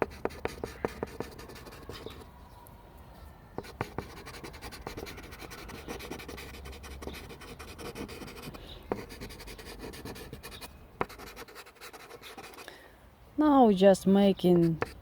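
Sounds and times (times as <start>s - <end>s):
charcoal scratching on paper: 0.0s - 2.2s, 3.6s - 12.6s, 14.6s - 15.0s.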